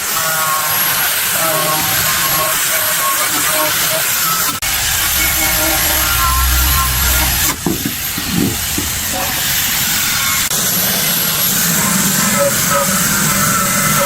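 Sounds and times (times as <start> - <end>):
loud hissing rush: 4.6 - 12.0.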